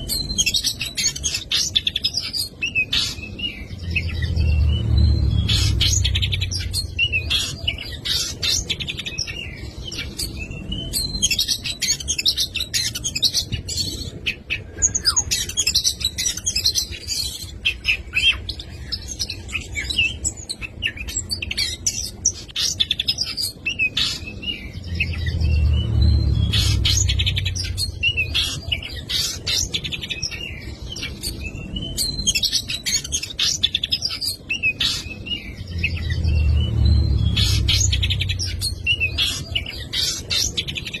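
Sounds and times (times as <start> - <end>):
bird singing whistles and trills: 0.0 - 41.0
low rumble: 3.4 - 7.8, 24.5 - 28.7, 35.3 - 39.6.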